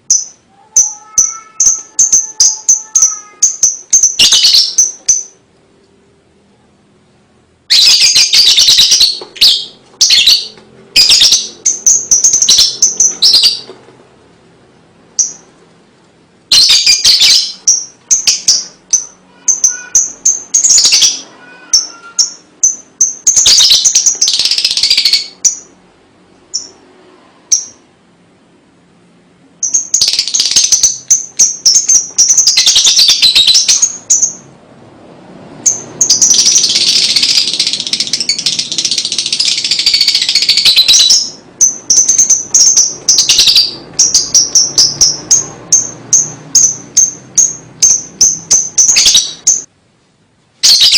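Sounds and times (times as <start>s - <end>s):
bird chirps: 0.0s - 5.4s, 7.7s - 13.8s, 15.2s - 15.5s, 16.5s - 25.8s, 26.5s - 26.8s, 27.5s - 27.8s, 29.6s - 34.5s, 35.6s - 49.7s, 50.6s - 50.9s
lovebird chattering trills: 0.0s - 5.4s, 7.7s - 13.7s, 16.5s - 25.8s, 29.6s - 34.4s, 35.6s - 49.7s.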